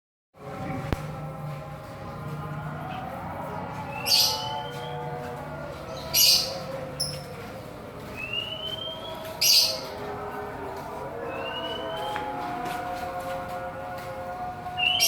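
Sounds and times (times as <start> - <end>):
birds calling: 3.6 - 13.2, 14.7 - 15.0
harsh high bird chirp: 3.9 - 5.0.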